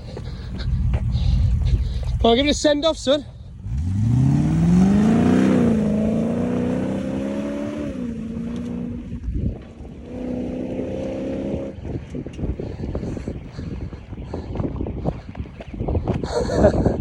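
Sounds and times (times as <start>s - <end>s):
engine revving hard: 3.6s - 9.1s, 10.0s - 11.8s.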